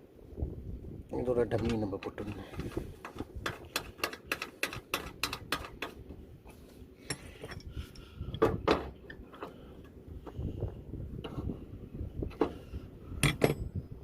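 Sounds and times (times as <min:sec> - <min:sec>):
metal tools clinking on valve caps: 0:07.0 - 0:08.0, 0:13.2 - 0:13.7.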